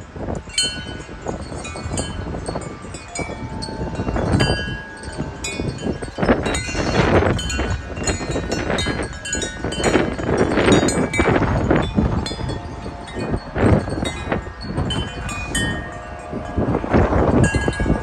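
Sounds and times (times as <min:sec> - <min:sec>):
wind chimes ringing: 0:00.0 - 0:18.0
wind rumble on microphone: 0:00.0 - 0:18.0.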